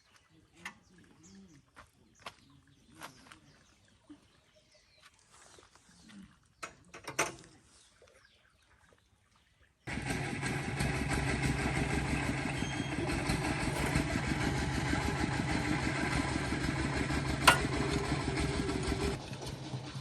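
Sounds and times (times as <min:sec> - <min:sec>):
engine running: 0:09.9 - 0:20.0.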